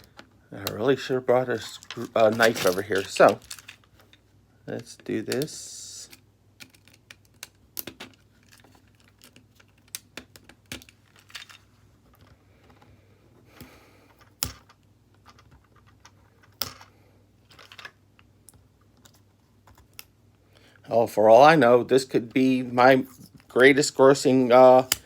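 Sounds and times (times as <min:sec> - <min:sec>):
tools clicking on phone parts: 0:24.8 - 0:25.0.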